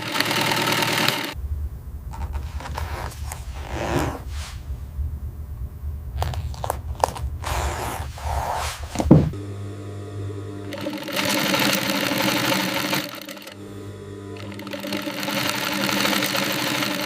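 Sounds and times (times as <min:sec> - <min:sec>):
sewing machine stitching: 0:00.0 - 0:01.4, 0:10.6 - 0:17.0
motor hum: 0:00.0 - 0:17.0.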